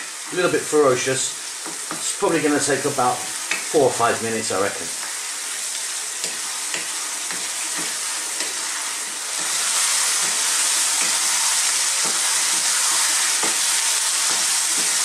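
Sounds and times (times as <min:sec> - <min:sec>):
potatoes sizzling in a wok: 0:00.0 - 0:15.0
wooden spoon scraping a pan: 0:06.2 - 0:15.0.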